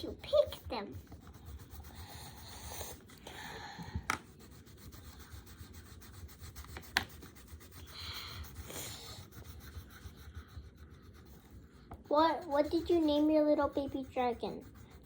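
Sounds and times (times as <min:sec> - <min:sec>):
pencil scratching on paper: 0:00.0 - 0:15.0
pencil tapping on table: 0:03.8 - 0:04.4, 0:06.4 - 0:07.3, 0:11.8 - 0:12.1.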